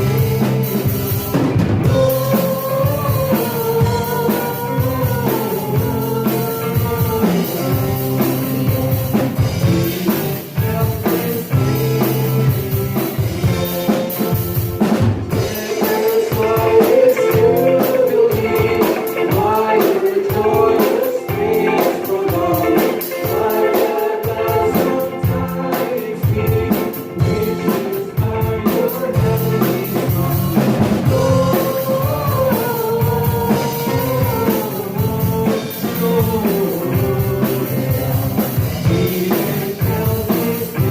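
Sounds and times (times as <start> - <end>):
person singing: 0.0 - 14.5, 15.3 - 40.9
drum kit beat: 0.0 - 40.9
worship band playing: 0.0 - 40.9.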